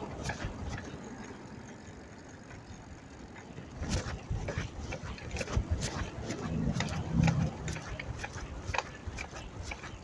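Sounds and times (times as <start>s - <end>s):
bicycle clicks and knocks: 0.0s - 10.0s
wind on microphone: 3.6s - 10.0s.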